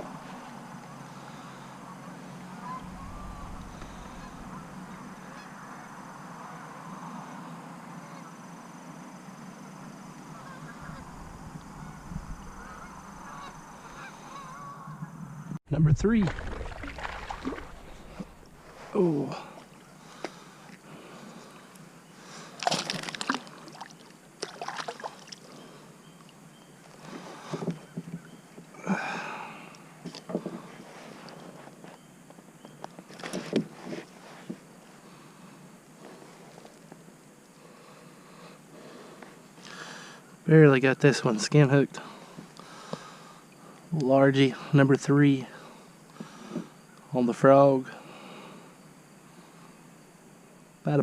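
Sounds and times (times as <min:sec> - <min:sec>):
geese honking: 0:01.9 - 0:06.8, 0:10.3 - 0:15.1
water splashing and sloshing: 0:02.7 - 0:05.4, 0:16.0 - 0:20.8, 0:22.5 - 0:25.6.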